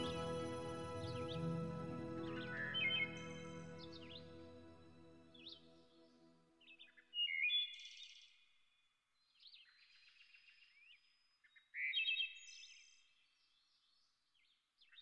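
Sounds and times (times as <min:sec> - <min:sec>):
small songbirds singing: 0:00.0 - 0:04.5.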